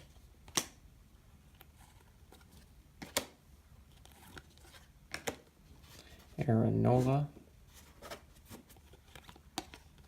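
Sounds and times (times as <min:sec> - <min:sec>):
cards being flipped: 0:00.0 - 0:00.8, 0:01.5 - 0:06.1, 0:07.7 - 0:10.0.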